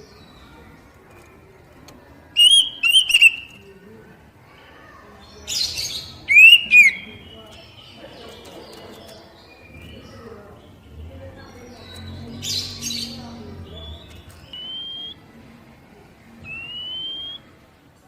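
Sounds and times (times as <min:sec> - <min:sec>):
magpie-robin whistled notes: 0:02.4 - 0:03.6, 0:06.3 - 0:07.3, 0:13.8 - 0:15.2, 0:16.5 - 0:17.4.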